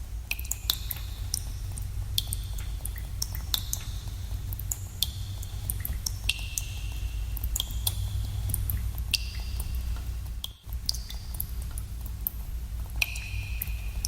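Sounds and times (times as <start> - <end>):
low cave rumble: 0.0 - 14.0
water drops plinking: 13.0 - 13.8.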